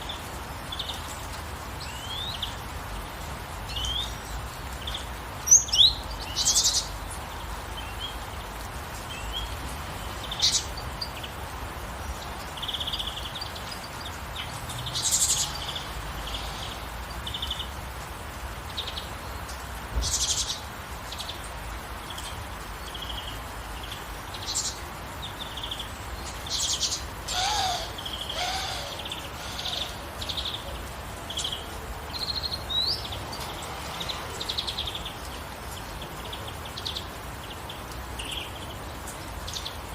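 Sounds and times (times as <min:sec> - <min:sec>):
gentle rain: 0:00.0 - 0:39.9
birds chirping: 0:18.6 - 0:39.9
low falling bird call: 0:26.6 - 0:30.7.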